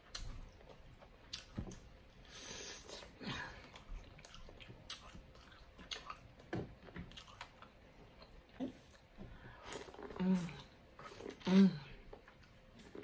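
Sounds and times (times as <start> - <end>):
wet chewing mouth sounds: 3.7 - 6.4.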